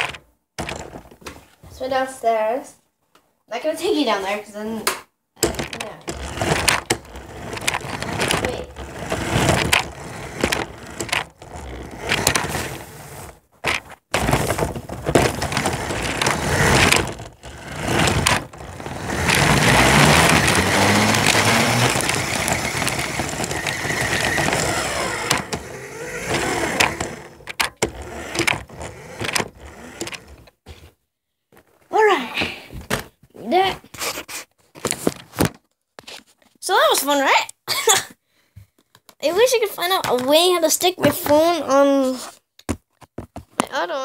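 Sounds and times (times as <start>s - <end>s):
toy car knocking over plastic bricks: 0.0s - 1.2s, 5.4s - 30.6s
toy car electric motor whirring: 5.6s - 13.4s, 14.2s - 30.5s.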